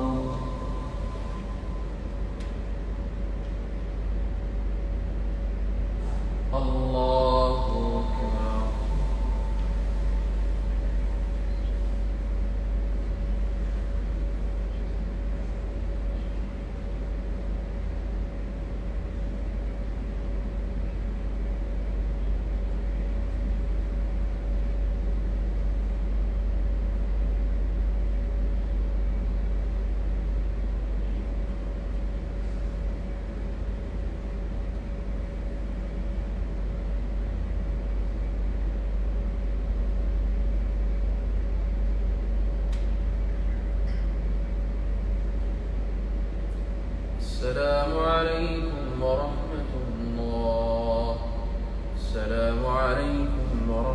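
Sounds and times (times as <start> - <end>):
low rumble: 0.0 - 4.7, 5.6 - 14.2
mid-pitched hum: 0.0 - 53.9.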